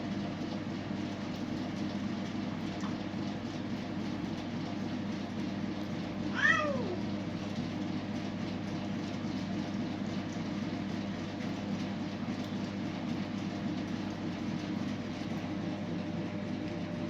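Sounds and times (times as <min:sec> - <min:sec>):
steady low background hum: 0:00.0 - 0:17.0
cat meowing: 0:06.3 - 0:07.0.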